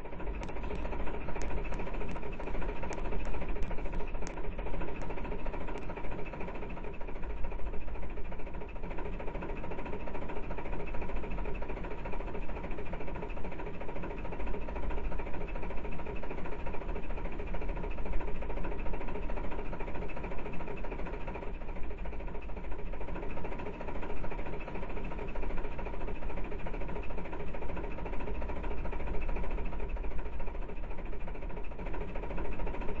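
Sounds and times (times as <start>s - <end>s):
engine rumbling: 0.0s - 6.9s.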